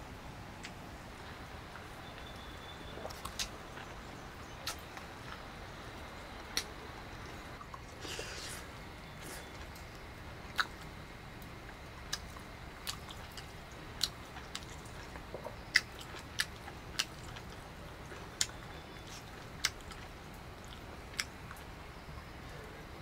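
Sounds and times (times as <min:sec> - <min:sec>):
steady background noise: 0:00.0 - 0:23.0
person chewing food: 0:02.8 - 0:03.9, 0:04.6 - 0:05.5, 0:06.5 - 0:10.9, 0:11.7 - 0:21.6.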